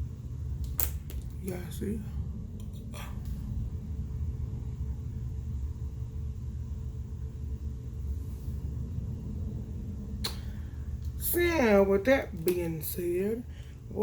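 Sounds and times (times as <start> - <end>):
faint steady hum: 0.0 - 14.0
low background rumble: 0.0 - 14.0.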